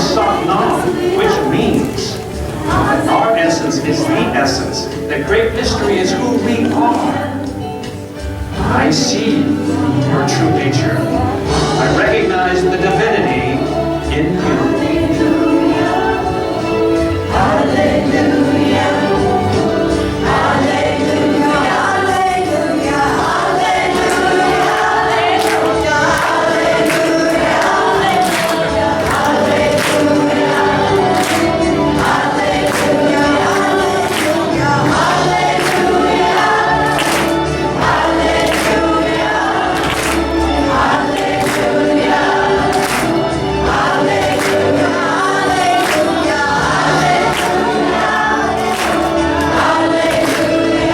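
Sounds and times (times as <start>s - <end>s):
choir singing: 0.0s - 50.9s
instrumental accompaniment: 0.0s - 50.9s
steady percussive beat: 0.0s - 50.9s.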